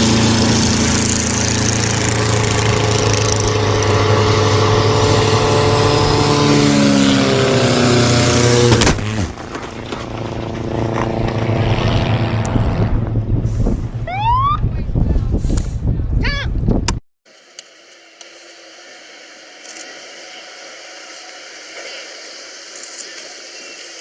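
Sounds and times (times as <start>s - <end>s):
quieter engine sound: 0.0s - 15.3s
aircraft engine running: 0.0s - 15.9s.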